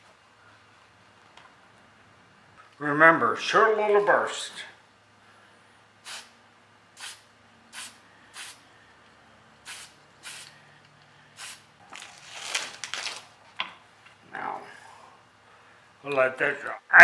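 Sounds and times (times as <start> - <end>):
aerosol can spraying: 6.0 - 6.4, 7.0 - 8.6, 9.6 - 10.6, 11.4 - 11.6.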